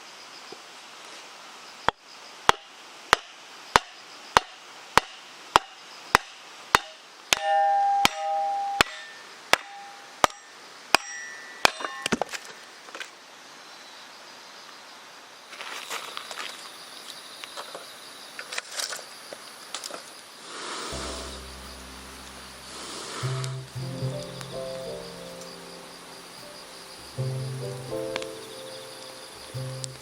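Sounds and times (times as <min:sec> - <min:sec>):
hammer striking log on wedge: 0:02.5 - 0:12.2
metallic clang: 0:07.3 - 0:12.6
stream rushing: 0:20.9 - 0:30.0.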